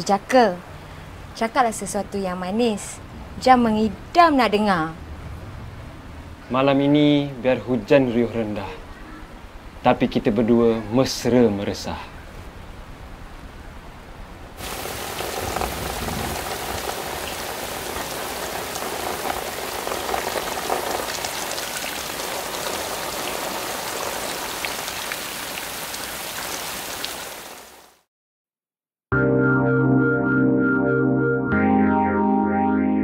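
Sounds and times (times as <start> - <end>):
heavy rain falling: 14.6 - 28.0.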